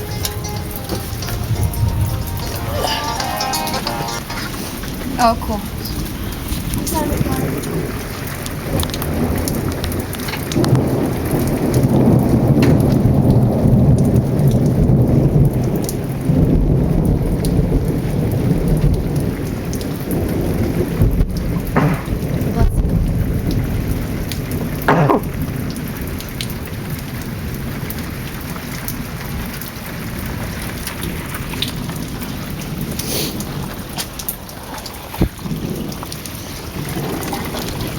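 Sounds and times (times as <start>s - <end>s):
heavy rain: 0.0s - 37.9s
rolling thunder rumble: 4.6s - 25.7s.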